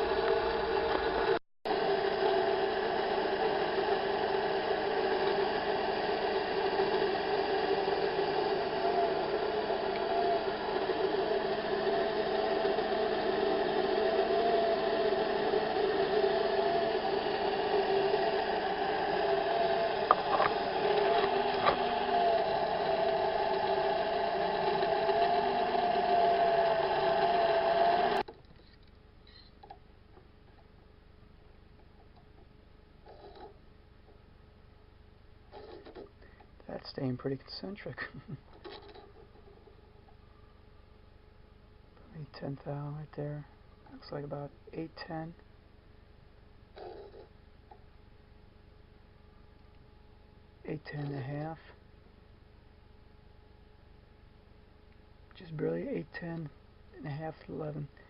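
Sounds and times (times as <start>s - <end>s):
metal lathe hum and whine: 0.0s - 28.2s.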